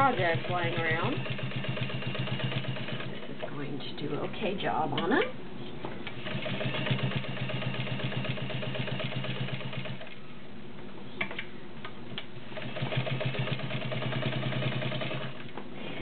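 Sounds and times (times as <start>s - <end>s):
sewing machine running: 0.0s - 3.4s, 6.2s - 10.2s, 12.5s - 15.5s.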